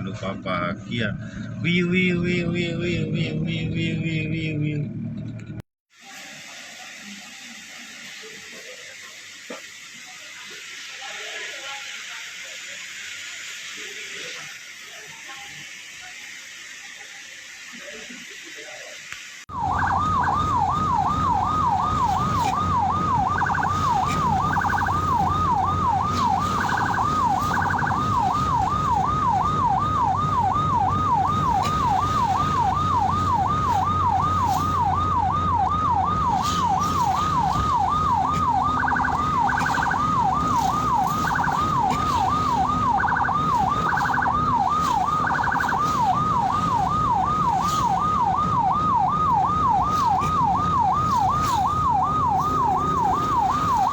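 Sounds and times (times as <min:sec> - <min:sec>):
low vehicle hum: 0:00.0 - 0:05.6, 0:19.5 - 0:53.9
ambulance siren yelping: 0:19.5 - 0:53.9
short high-pitched blips: 0:23.2 - 0:28.7, 0:36.6 - 0:46.2.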